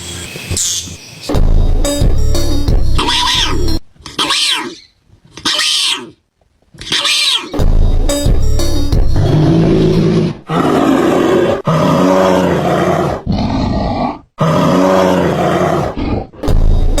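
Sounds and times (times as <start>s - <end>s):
large animal roaring: 9.2s - 16.6s.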